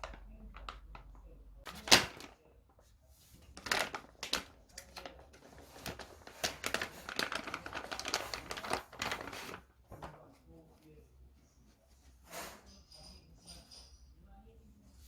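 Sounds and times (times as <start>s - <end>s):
plastic packaging crinkling: 0.0s - 2.5s, 3.4s - 10.2s.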